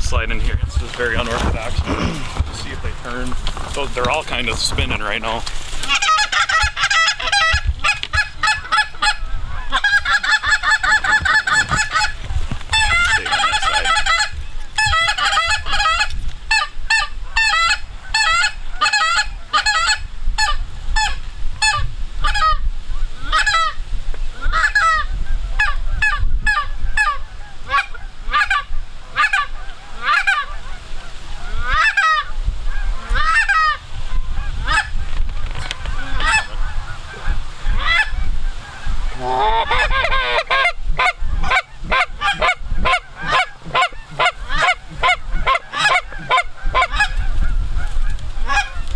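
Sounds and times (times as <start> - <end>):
low wind rumble: 0.0 - 48.9
geese honking: 0.7 - 48.9
goose calls: 1.0 - 23.8, 24.4 - 48.9.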